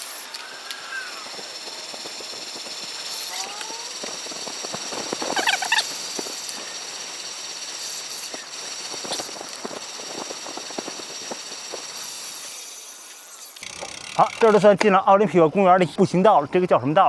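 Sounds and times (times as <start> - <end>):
gliding bird call: 0.0 - 4.5, 5.2 - 7.5
high-pitched insect drone: 0.0 - 14.6
bird chattering call: 5.3 - 6.0.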